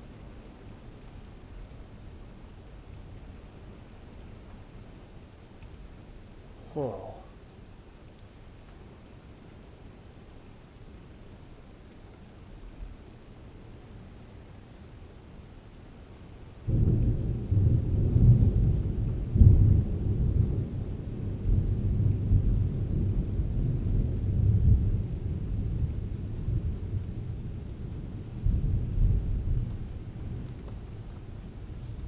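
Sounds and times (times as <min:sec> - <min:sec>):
thunder crack and rolling rumble: 0:16.6 - 0:32.0.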